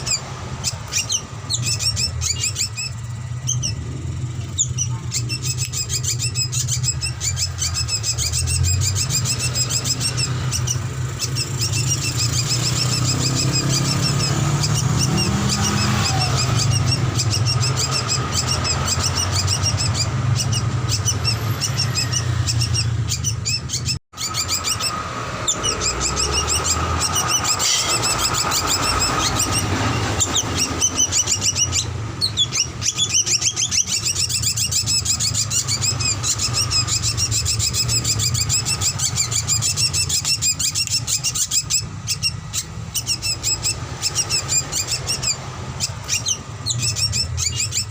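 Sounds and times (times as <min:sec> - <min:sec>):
steady low hum: 0:00.0 - 0:15.4
drongo calling with high chirps: 0:00.0 - 0:47.9.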